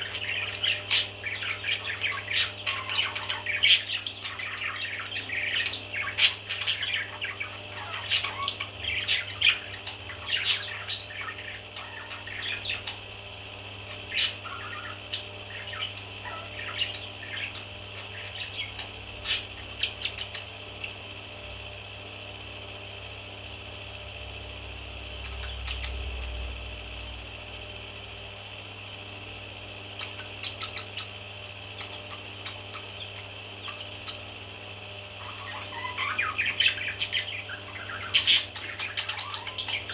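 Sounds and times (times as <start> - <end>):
baby parrots chirping and squawking: 0.0 - 13.1, 13.8 - 21.0, 25.1 - 26.4, 30.0 - 34.6, 35.2 - 39.9
steady hum: 0.0 - 39.9.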